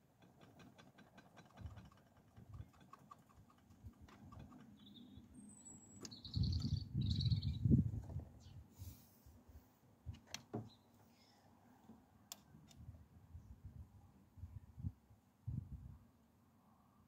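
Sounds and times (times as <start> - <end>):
bird chirping: 4.2 - 8.7.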